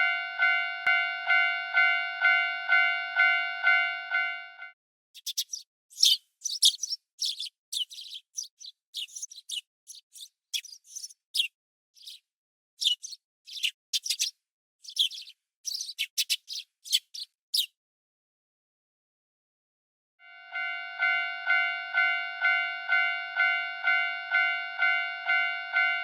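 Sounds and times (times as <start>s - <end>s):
railroad crossing bell: 0.0s - 4.8s, 20.2s - 26.0s
small birds chirping: 5.2s - 17.8s.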